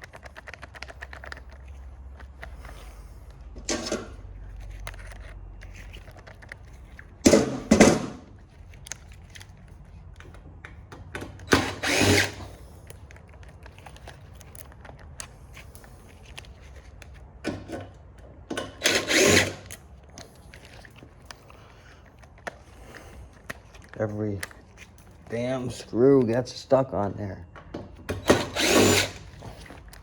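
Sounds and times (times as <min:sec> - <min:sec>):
handling clicks: 0:00.0 - 0:18.2, 0:19.6 - 0:26.8
power drill bursts: 0:11.5 - 0:12.6, 0:18.8 - 0:19.7, 0:28.1 - 0:29.3.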